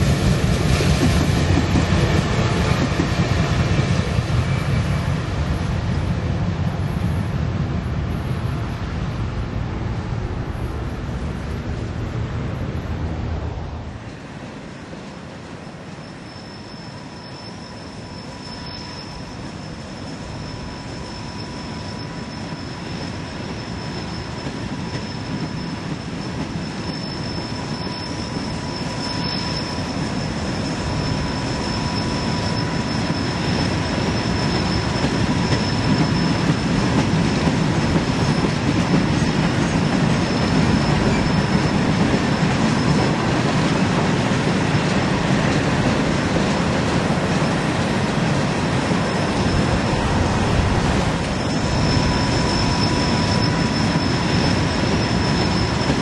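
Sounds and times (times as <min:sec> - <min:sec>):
train engine and wheel rumble: 0:00.0 - 0:56.0
high-pitched squeal: 0:15.6 - 0:56.0.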